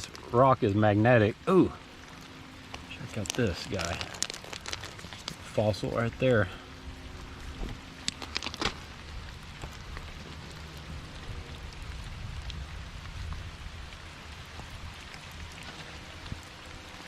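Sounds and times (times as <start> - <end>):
rain pattering on gravel: 0.0 - 17.0.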